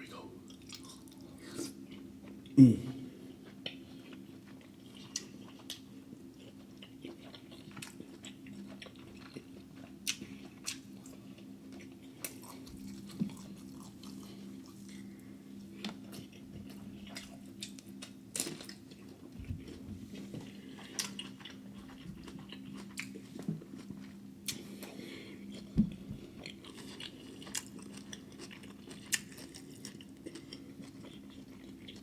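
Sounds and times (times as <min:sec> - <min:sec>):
faint steady hum: 0:00.0 - 0:32.0
person chewing food: 0:00.4 - 0:32.0.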